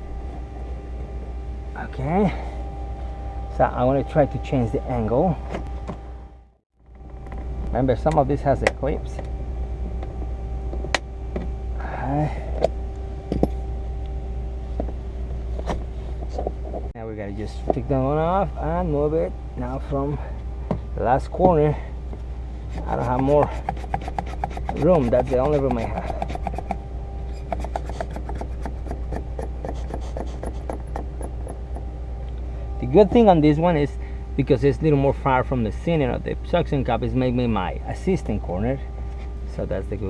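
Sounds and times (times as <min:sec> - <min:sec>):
steady low hum: 0:00.0 - 0:40.0
cutting wire scraping: 0:22.7 - 0:31.9.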